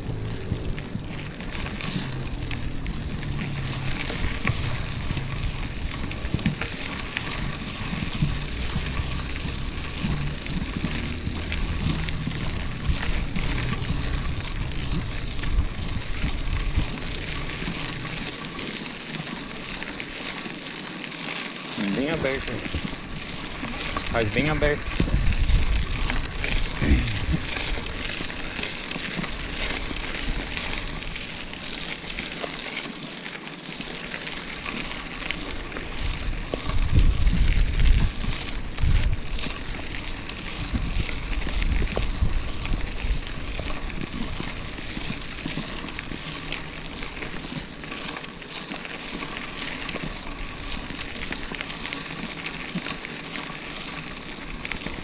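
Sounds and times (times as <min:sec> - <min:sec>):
wind buffeting microphone: 0:00.0 - 0:18.5, 0:21.8 - 0:31.5, 0:35.4 - 0:47.4
bike tyres hissing on rough ground: 0:00.0 - 0:55.0
small clicks and rattles: 0:00.0 - 0:55.0.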